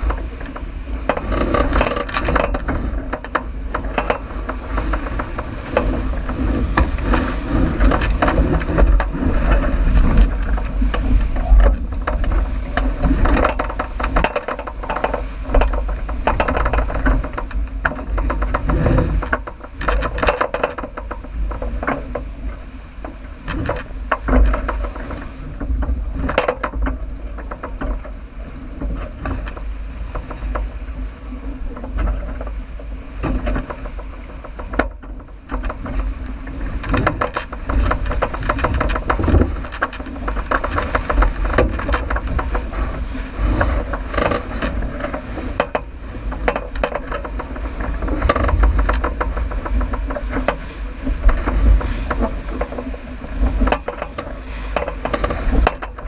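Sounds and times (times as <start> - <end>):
knocks and rattles: 0.0 - 31.0, 31.6 - 56.0
water rushing: 0.0 - 56.0
wind buffeting microphone: 0.0 - 56.0.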